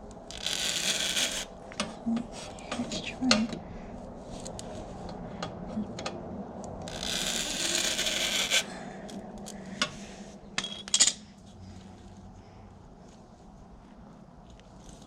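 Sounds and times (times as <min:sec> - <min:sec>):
metal tool scraping oil filter: 0:00.3 - 0:01.5, 0:06.9 - 0:08.7.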